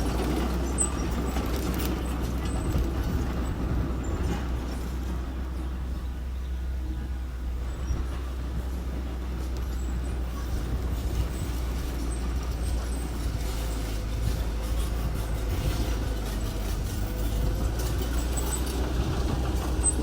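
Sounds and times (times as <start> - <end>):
diesel engine rumbling: 0.0 - 20.0
faint clatter: 7.6 - 20.0.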